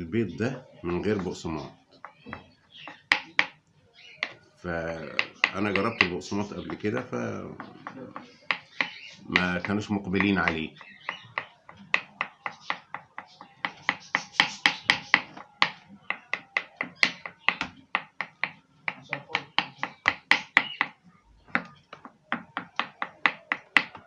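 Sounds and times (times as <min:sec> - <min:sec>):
knife chopping on cutting board: 0:07.6 - 0:24.0.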